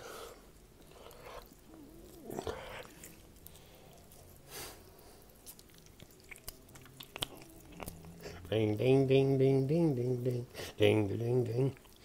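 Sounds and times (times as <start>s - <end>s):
wet chewing and biting: 0.6s - 8.5s
mouth clicks and smacks: 5.4s - 8.5s.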